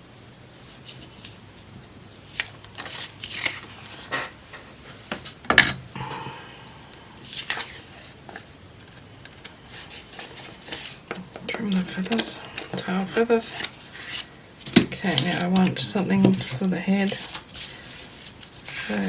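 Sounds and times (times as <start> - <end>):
paper rustling: 2.3 - 4.3, 7.3 - 19.0.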